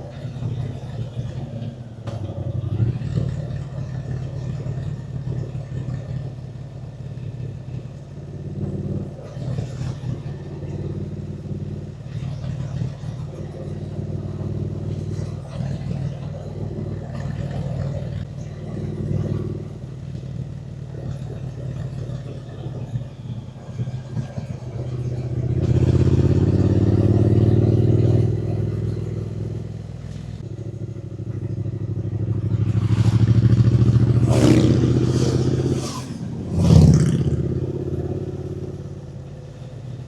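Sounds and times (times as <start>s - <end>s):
motorcycle engine revving: 0.0s - 40.0s
wind and road noise: 0.0s - 40.0s.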